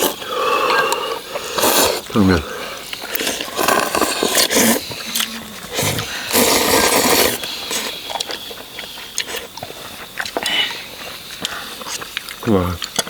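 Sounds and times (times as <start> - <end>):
person slurping: 0.0 - 9.5.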